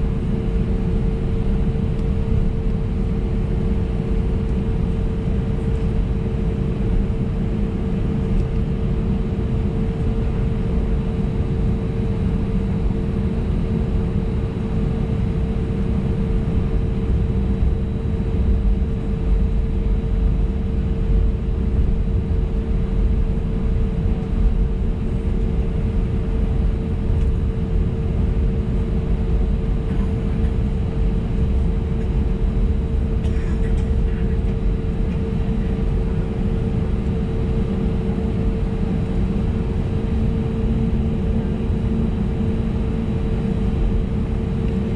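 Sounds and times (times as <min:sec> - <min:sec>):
aircraft engines rumbling: 0:00.0 - 0:44.9
constant cabin hum: 0:00.0 - 0:44.9.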